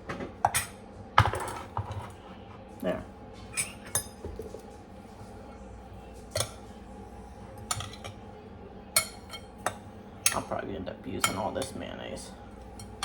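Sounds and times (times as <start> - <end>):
utensil clinking against dishware: 7.7 - 8.2, 9.0 - 10.6, 11.2 - 11.9.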